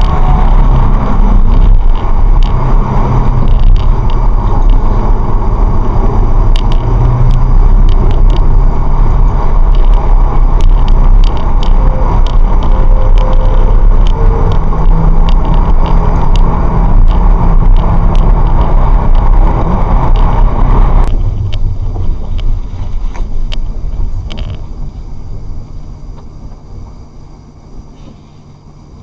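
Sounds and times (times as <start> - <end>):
small clicks: 0.0 - 5.2, 6.3 - 21.6
road and tyre noise: 0.0 - 29.0.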